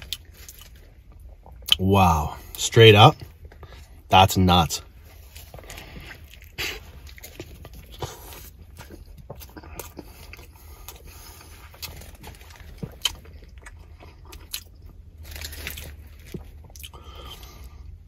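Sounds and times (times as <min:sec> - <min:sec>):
low steady hum: 0:00.0 - 0:18.0
chewing food: 0:04.8 - 0:18.0.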